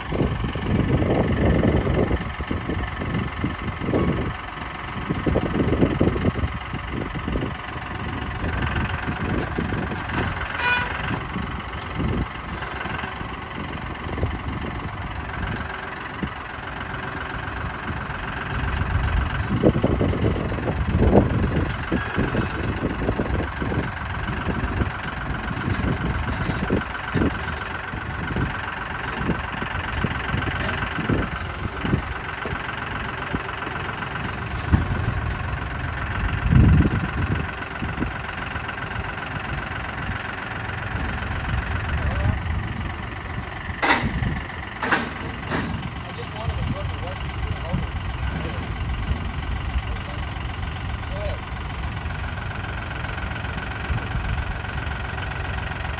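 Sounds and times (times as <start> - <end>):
engine idling: 0.0 - 55.9
knocks and thumps: 44.8 - 46.0.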